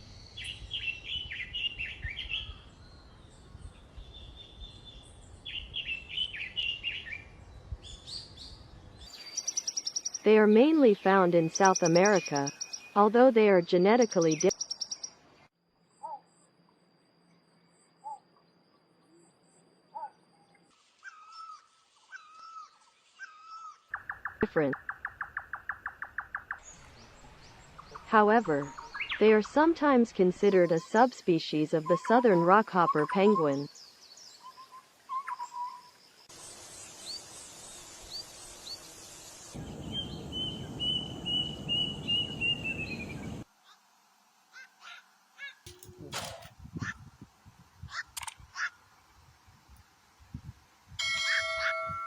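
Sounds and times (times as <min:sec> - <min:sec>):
bird chirps: 0:00.0 - 0:13.1, 0:13.7 - 0:15.2, 0:31.8 - 0:36.2, 0:39.6 - 0:43.4
outdoor background noise: 0:00.0 - 0:52.0
high whistled bird notes: 0:39.6 - 0:43.4.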